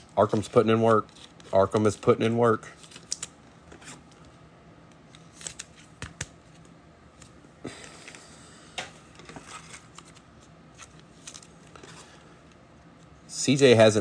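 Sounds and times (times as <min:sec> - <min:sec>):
card rustle: 0:00.1 - 0:04.3, 0:05.1 - 0:08.2, 0:09.0 - 0:13.1
trading cards flicking: 0:05.4 - 0:07.3.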